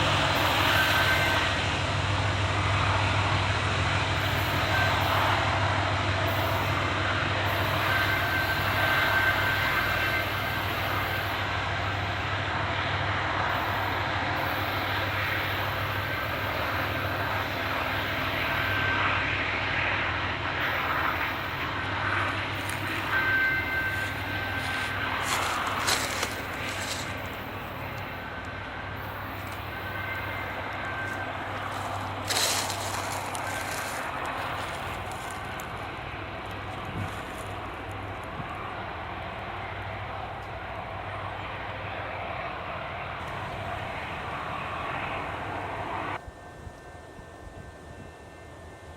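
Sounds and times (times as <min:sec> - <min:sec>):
high-pitched wheel squeals: 0:00.0 - 0:01.8, 0:04.2 - 0:12.4, 0:13.5 - 0:39.1
low engine hum: 0:00.0 - 0:09.4, 0:10.3 - 0:48.9
train wheels rumbling on rail: 0:00.0 - 0:48.9.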